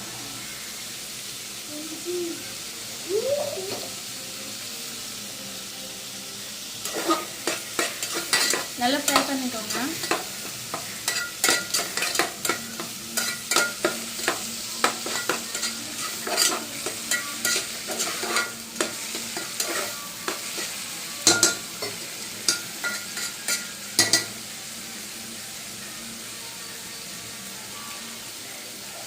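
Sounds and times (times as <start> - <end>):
food sizzling in hot oil: 0.0 - 29.0
spatula scraping a pan: 6.8 - 24.3.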